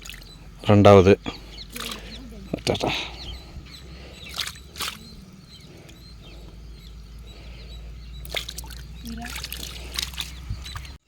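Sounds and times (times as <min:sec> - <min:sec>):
faint bird chirps: 0:00.0 - 0:11.0
low outdoor background: 0:00.0 - 0:11.0
short sharp knocks or splashes: 0:04.3 - 0:05.0, 0:08.2 - 0:11.0.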